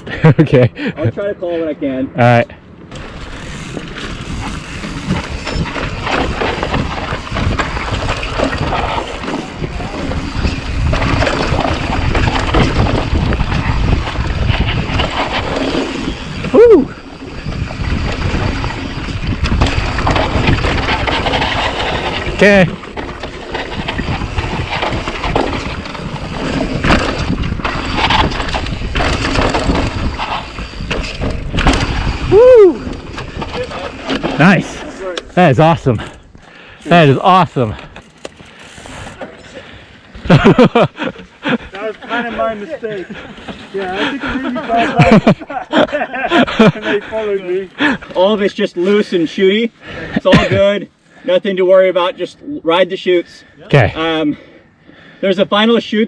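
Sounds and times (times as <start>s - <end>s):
bike rattling over bumps: 2.7s - 50.8s
tyres crunching and skidding on dirt: 2.8s - 49.2s
wind on microphone: 2.9s - 34.9s.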